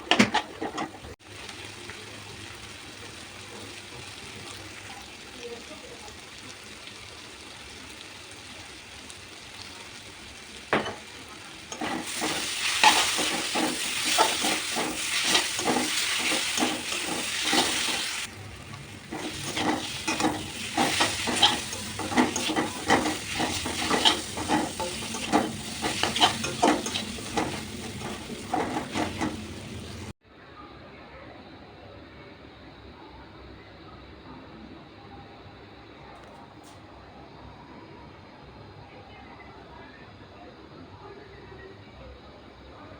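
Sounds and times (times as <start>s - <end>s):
spoon scraping in a pan: 0.0s - 1.2s, 11.7s - 30.1s
food sizzling: 0.0s - 30.2s.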